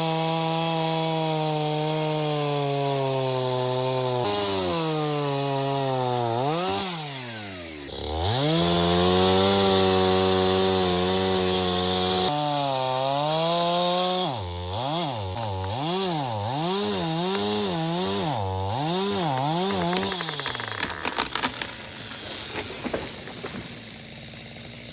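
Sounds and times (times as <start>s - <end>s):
chainsaw engine revving: 0.0s - 24.9s.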